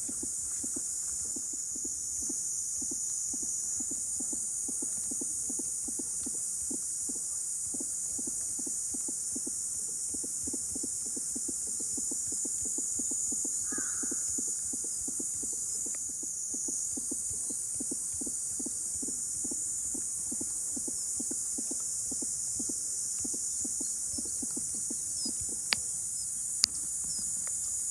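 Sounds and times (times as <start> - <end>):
cicadas droning: 0.0 - 27.9
sharp click: 26.6 - 27.6.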